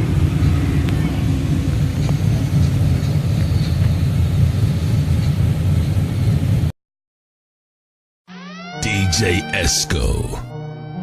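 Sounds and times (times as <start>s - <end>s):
car engine rumbling: 0.0s - 6.7s.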